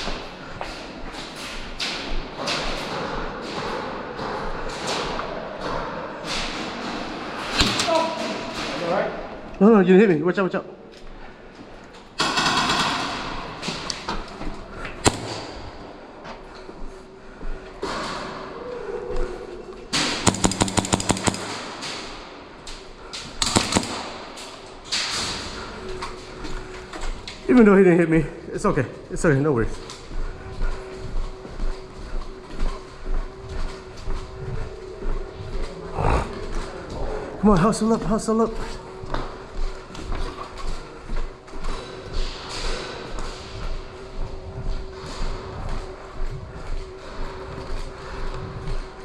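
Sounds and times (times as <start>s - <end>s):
airsoft gun firing bursts: 15.0s - 15.6s, 20.1s - 21.8s, 23.4s - 24.3s.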